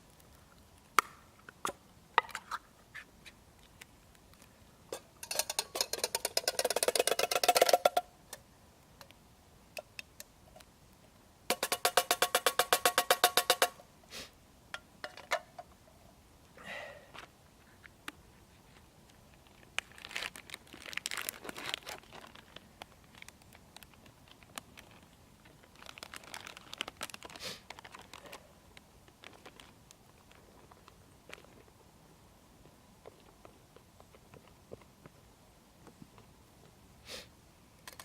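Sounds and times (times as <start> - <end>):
packaging rustling and crinkling: 18.6 - 31.6.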